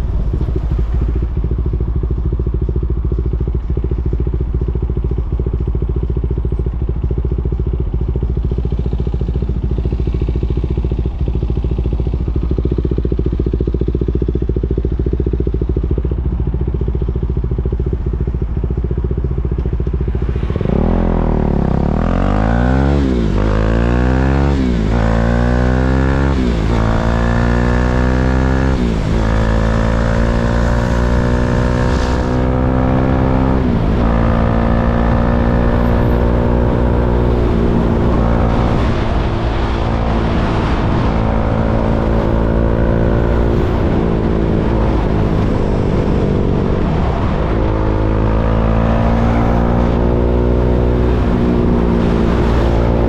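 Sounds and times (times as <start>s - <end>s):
wind rush: 0.0s - 2.1s, 19.2s - 53.0s
motorcycle engine idling: 0.0s - 22.5s
motorcycle accelerating through gears: 0.0s - 53.0s.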